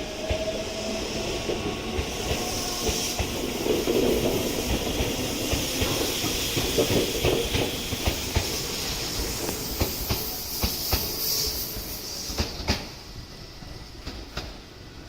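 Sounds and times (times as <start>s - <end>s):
train wheels clacking over joints: 1.5s - 13.0s
steady hiss: 2.0s - 14.6s.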